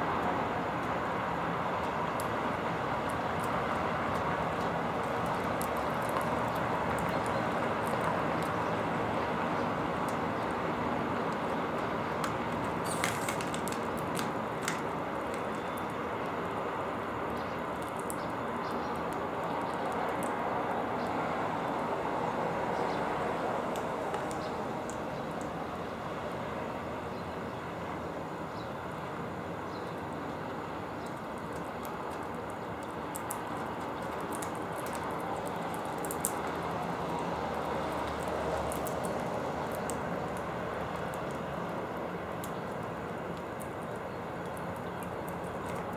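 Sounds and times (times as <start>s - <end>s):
city traffic hum: 0.0s - 45.9s
small birds chirping: 4.5s - 13.0s, 15.3s - 16.3s, 17.3s - 21.2s, 29.7s - 36.6s, 43.5s - 45.9s.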